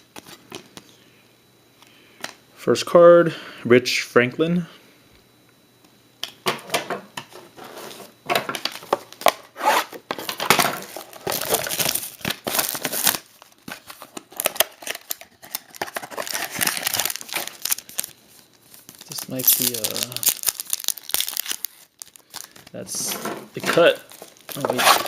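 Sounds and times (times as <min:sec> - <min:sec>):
cards and packaging rustling: 0:07.3 - 0:25.0.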